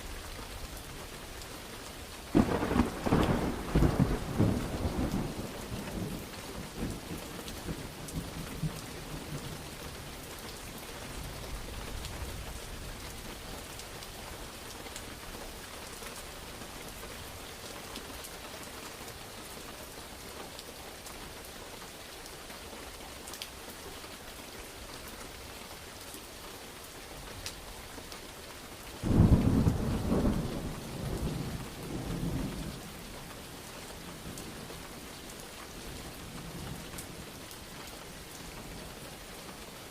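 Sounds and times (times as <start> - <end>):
heavy rain falling: 0.0 - 39.9
thunder rumbling: 2.3 - 8.8, 29.0 - 33.0.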